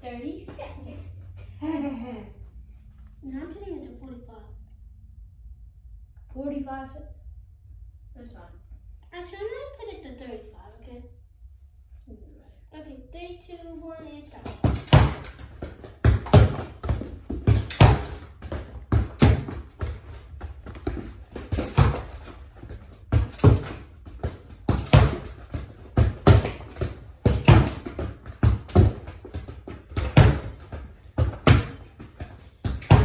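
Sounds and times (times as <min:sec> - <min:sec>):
soccer ball thudding against wall: 0:14.4 - 0:33.0.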